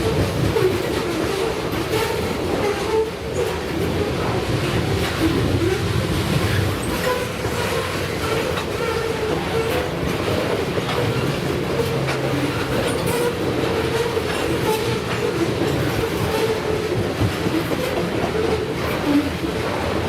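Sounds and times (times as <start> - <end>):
freight train cars rumbling: 0.0 - 20.0
wheel clatter on rails: 0.0 - 20.0.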